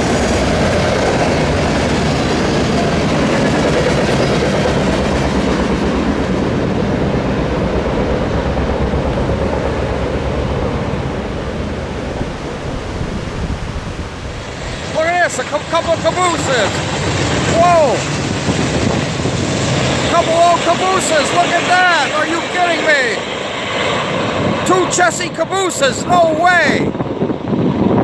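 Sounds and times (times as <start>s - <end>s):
train cars rolling on rails: 0.0s - 6.3s.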